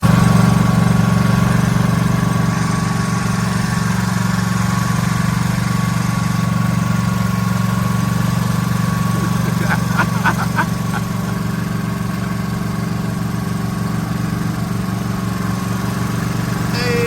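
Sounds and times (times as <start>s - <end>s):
exhaust fan motor hum: 8.6s - 13.7s.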